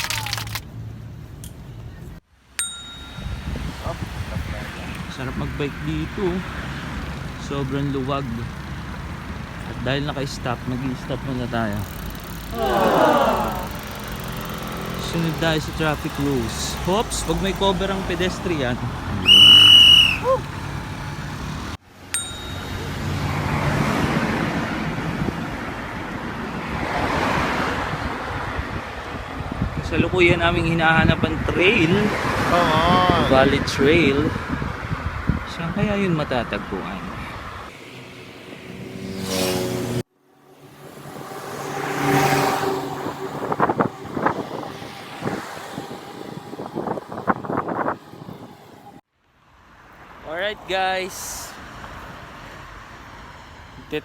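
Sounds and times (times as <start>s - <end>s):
road traffic rumble: 0.0s - 54.0s
bicycle bell ding: 2.6s - 3.7s, 22.1s - 23.0s
wind on microphone: 3.1s - 5.1s, 23.9s - 35.8s, 41.0s - 49.0s
car passing by: 3.4s - 21.8s, 22.8s - 29.8s, 36.9s - 53.7s.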